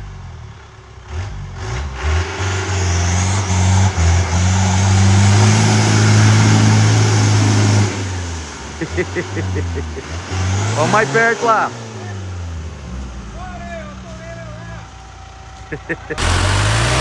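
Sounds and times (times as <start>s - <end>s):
engine revving hard: 1.1s - 13.0s, 16.1s - 17.0s.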